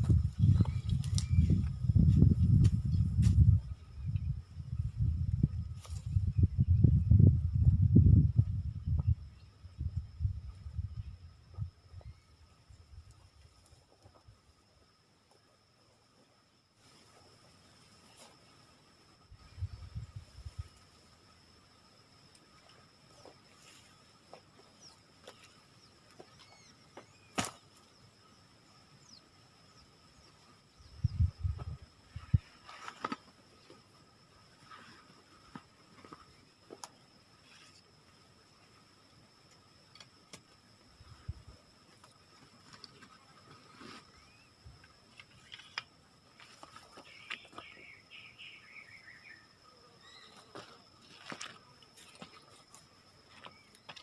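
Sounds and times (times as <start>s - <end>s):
insects droning: 0.0s - 54.0s
bird-like chirps: 25.8s - 27.4s, 47.0s - 50.5s.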